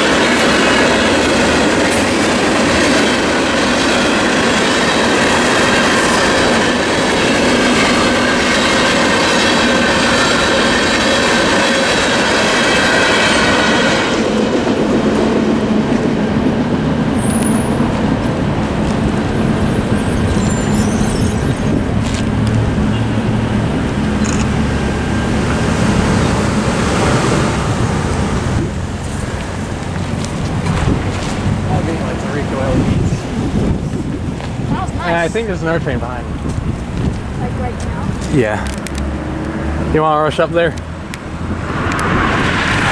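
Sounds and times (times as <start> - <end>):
train wheel squeal: 0.0 - 14.4, 17.1 - 18.3, 19.6 - 22.2
freight train cars rolling: 0.0 - 42.9.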